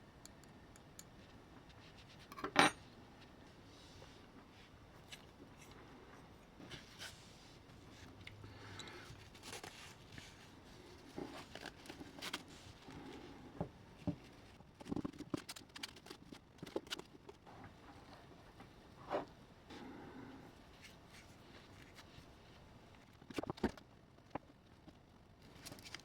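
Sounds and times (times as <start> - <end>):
hands clicking and tapping small parts: 0.2 - 1.3.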